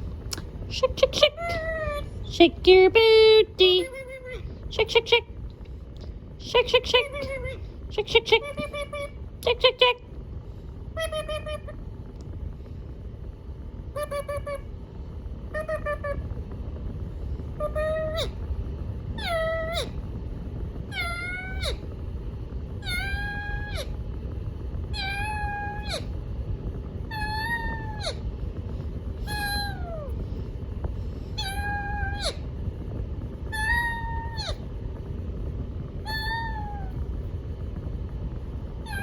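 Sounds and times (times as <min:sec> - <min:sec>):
parrot meow-like call: 0:11.0 - 0:11.8, 0:13.9 - 0:14.7, 0:15.5 - 0:16.3, 0:17.6 - 0:18.4, 0:19.2 - 0:20.0, 0:20.9 - 0:21.8, 0:22.8 - 0:24.0, 0:24.9 - 0:26.1, 0:27.1 - 0:28.2, 0:29.2 - 0:30.2, 0:31.4 - 0:32.5, 0:33.5 - 0:34.7, 0:36.0 - 0:37.0.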